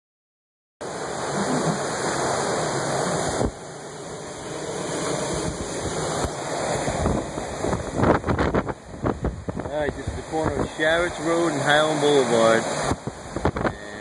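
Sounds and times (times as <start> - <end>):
hurricane wind rushing: 0.8 - 14.0
storm surge water rushing: 0.8 - 14.0
wind buffeting microphone: 4.7 - 11.8, 12.6 - 14.0.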